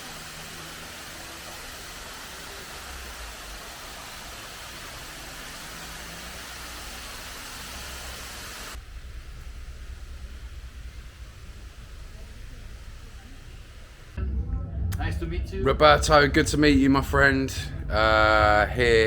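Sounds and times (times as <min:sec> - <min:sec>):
wide rushing hiss: 0:00.0 - 0:14.2
train low rumble: 0:08.8 - 0:19.0.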